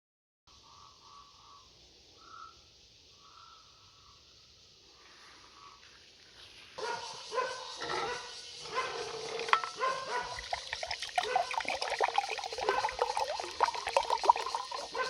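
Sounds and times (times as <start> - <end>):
animal calls: 12.3 - 15.0.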